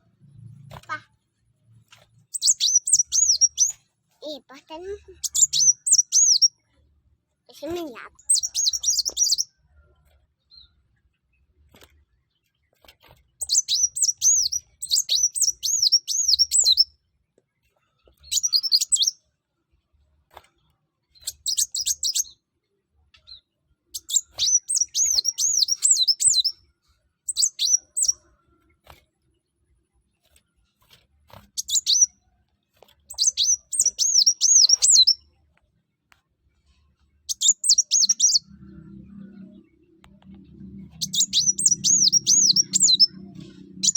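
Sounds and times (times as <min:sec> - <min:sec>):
bird twittering high-pitched: 0:02.3 - 0:06.6, 0:07.5 - 0:09.5, 0:13.4 - 0:16.9, 0:18.2 - 0:19.2, 0:21.2 - 0:22.4, 0:24.0 - 0:26.6, 0:27.3 - 0:28.2, 0:31.5 - 0:32.1, 0:33.1 - 0:35.2, 0:37.3 - 0:43.9
faint low hum: 0:38.1 - 0:43.9.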